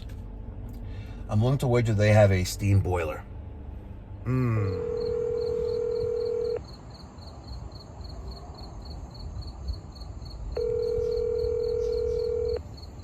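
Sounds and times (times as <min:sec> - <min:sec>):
telephone ringback tone: 0:04.7 - 0:06.6, 0:10.6 - 0:12.6.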